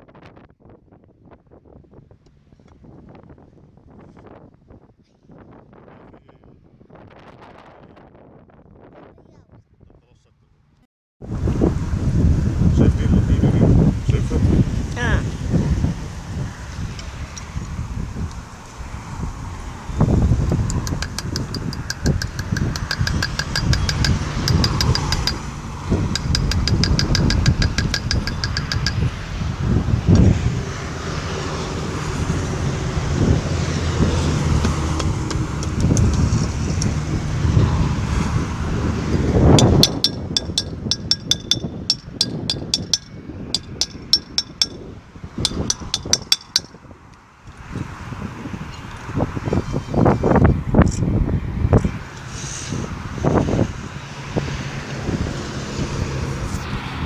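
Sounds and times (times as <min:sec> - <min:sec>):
metal-on-metal taps ringing: 0:20.5 - 0:29.2, 0:39.6 - 0:46.8
rapid even ticking: 0:20.5 - 0:29.3, 0:39.6 - 0:44.8, 0:45.4 - 0:46.8.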